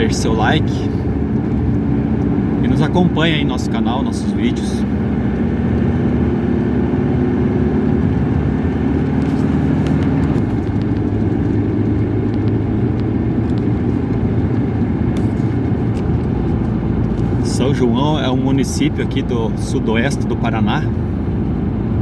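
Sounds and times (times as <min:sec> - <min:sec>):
car engine: 0:00.0 - 0:22.0
road noise: 0:00.0 - 0:22.0.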